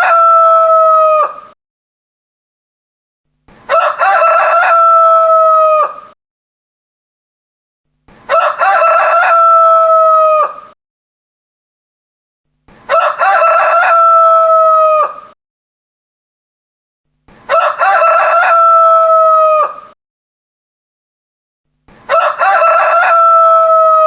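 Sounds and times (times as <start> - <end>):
rooster crowing: 0.0 - 1.5, 3.7 - 6.2, 8.3 - 10.8, 12.9 - 15.4, 17.5 - 20.0, 22.1 - 24.0.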